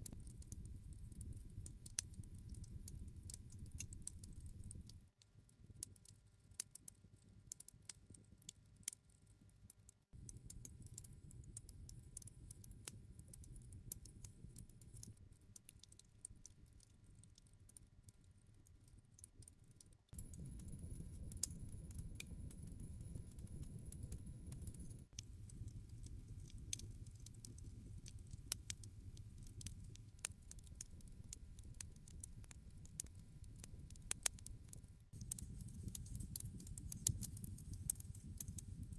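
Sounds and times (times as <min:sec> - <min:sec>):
wood fire crackling: 0:00.0 - 0:05.0, 0:24.5 - 0:34.5, 0:35.2 - 0:38.9.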